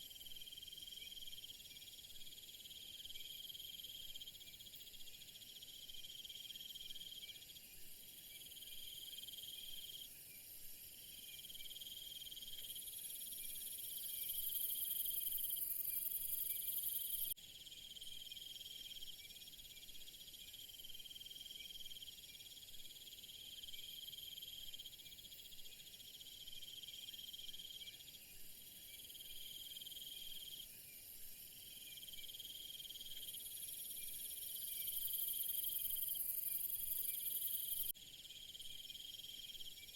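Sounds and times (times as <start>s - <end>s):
crickets and insects chirring: 8.4s - 19.0s, 28.9s - 39.9s
trilling insect call: 10.9s - 39.9s.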